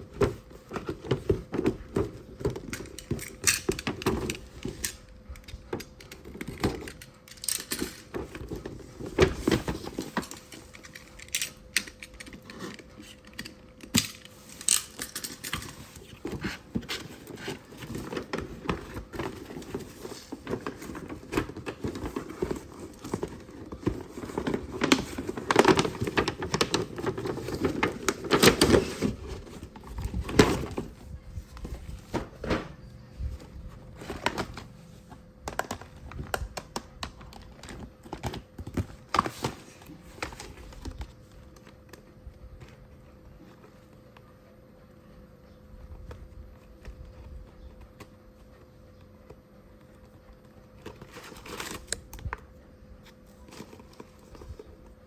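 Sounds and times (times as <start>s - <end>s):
packaging rustling: 0.0s - 32.7s, 49.8s - 52.3s.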